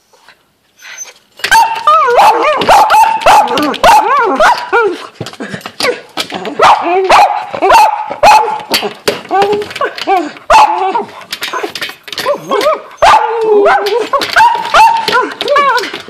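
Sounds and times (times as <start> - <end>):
dogs barking and yipping: 1.0 - 5.1, 5.8 - 16.0
dog whining: 9.3 - 16.0.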